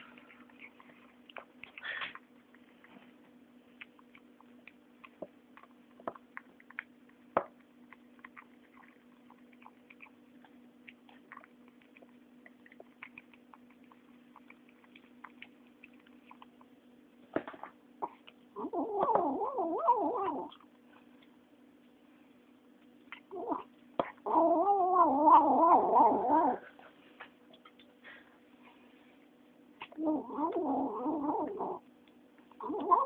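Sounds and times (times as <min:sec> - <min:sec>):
kitten chewing food: 0:00.0 - 0:24.2.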